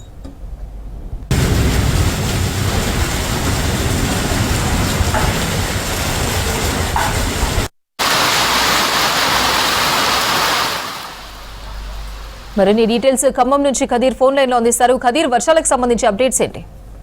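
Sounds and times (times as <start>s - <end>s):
wind rumbling on microphone: 0.9s - 7.7s
heavy rain pouring: 1.3s - 13.0s.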